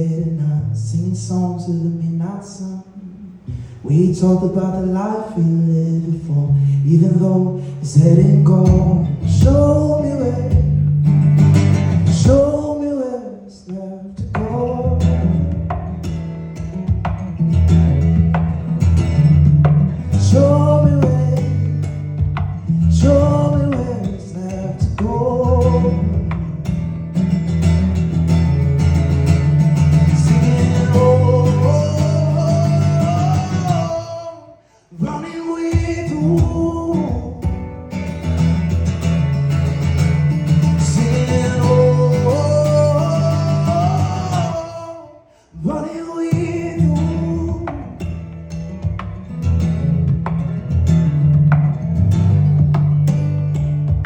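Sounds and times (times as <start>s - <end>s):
guitar and band accompaniment: 10.5s - 12.6s, 14.3s - 33.9s, 47.2s - 54.0s.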